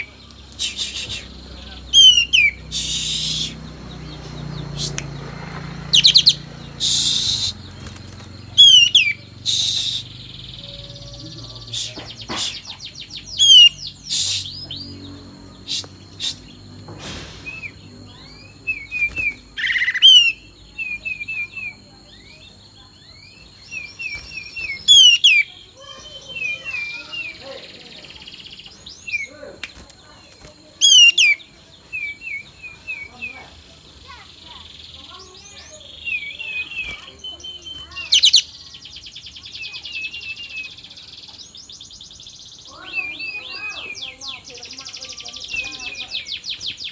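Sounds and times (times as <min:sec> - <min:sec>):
bird chirping: 0:00.0 - 0:46.9
songbird trilling and warbling: 0:00.0 - 0:46.9
bird fast rising trills: 0:00.6 - 0:10.6, 0:17.2 - 0:20.4, 0:23.8 - 0:25.5.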